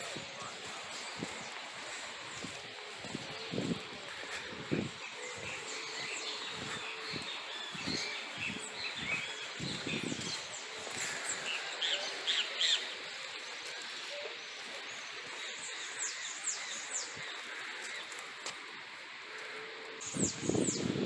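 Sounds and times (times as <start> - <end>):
small birds chirping and twittering: 0.0 - 21.0.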